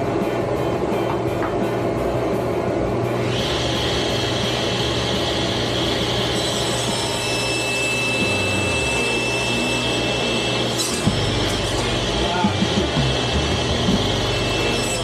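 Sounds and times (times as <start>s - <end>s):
table saw cutting board: 3.2s - 15.0s.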